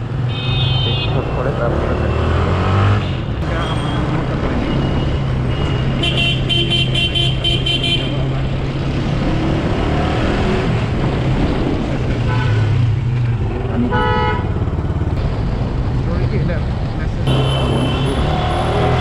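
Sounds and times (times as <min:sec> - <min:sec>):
traffic engine hum: 0:00.0 - 0:19.0
vehicle horns tooting: 0:00.3 - 0:04.2, 0:05.0 - 0:08.3, 0:13.8 - 0:14.6, 0:17.3 - 0:18.7.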